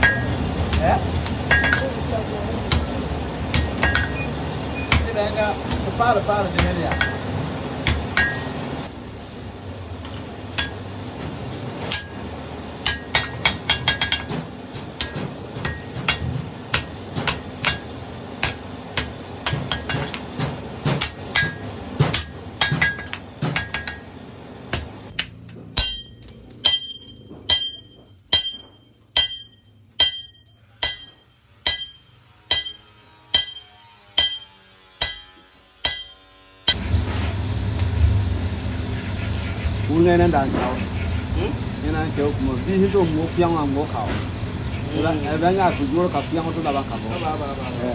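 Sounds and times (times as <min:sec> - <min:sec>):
hammer ringing on metal: 0:00.0 - 0:00.8, 0:01.4 - 0:02.0, 0:06.5 - 0:08.6, 0:12.8 - 0:24.1, 0:25.8 - 0:36.8
busy workshop background: 0:00.0 - 0:47.9.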